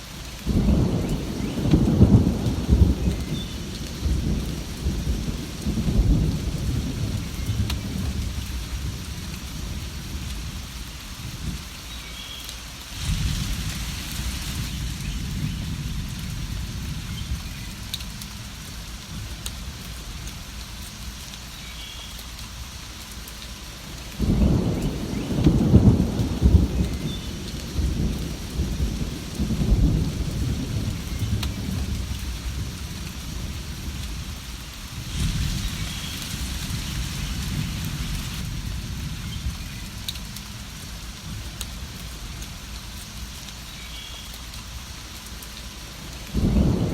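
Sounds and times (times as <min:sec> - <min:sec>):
steady rain: 0:00.0 - 0:46.9
thunder rumbling: 0:00.5 - 0:10.7, 0:13.0 - 0:20.0, 0:24.2 - 0:42.6, 0:46.2 - 0:46.9.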